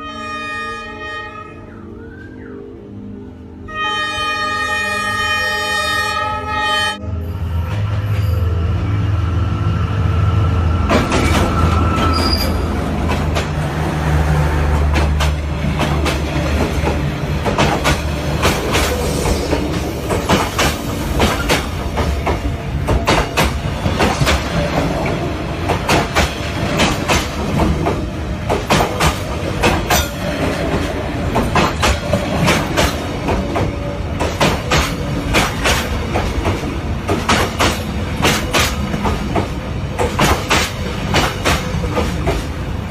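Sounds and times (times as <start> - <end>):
train rumble: 7.0 - 42.9
train wheels clacking on rails: 10.9 - 42.9.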